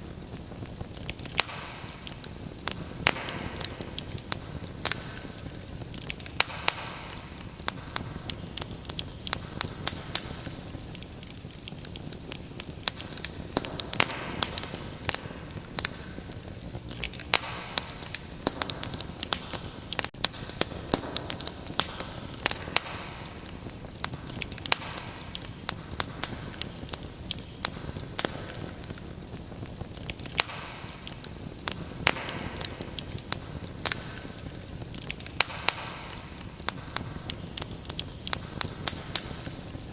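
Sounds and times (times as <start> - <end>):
fire hissing: 0.0 - 39.9
wood fire pops and snaps: 0.0 - 39.9.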